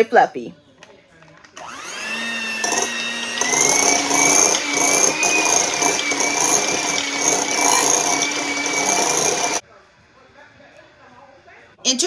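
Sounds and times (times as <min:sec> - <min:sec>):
beaters churning in bowl: 0:01.6 - 0:09.6
electric hand mixer whining: 0:01.6 - 0:09.6.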